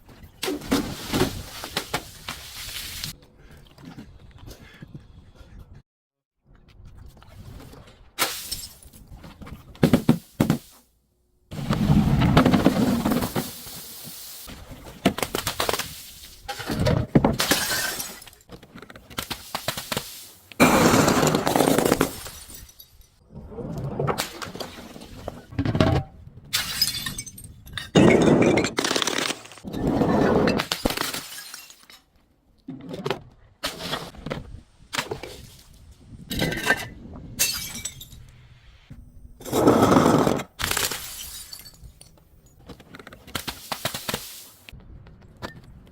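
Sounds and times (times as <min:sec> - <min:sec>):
glass bottles shattering: 0:17.4 - 0:18.5, 0:21.2 - 0:23.2, 0:26.6 - 0:29.6, 0:30.6 - 0:32.1, 0:36.4 - 0:38.2, 0:40.6 - 0:42.1.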